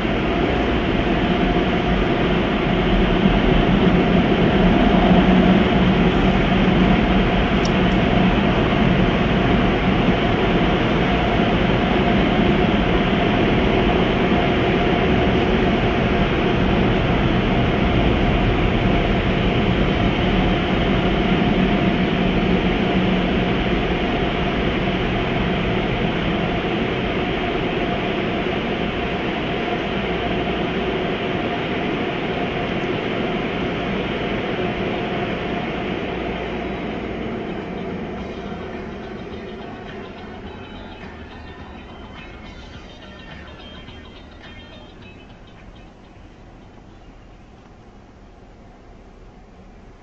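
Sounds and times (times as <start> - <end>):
low motor hum: 0.0 - 22.6, 35.5 - 47.8
car wash rushing noise: 0.0 - 42.5.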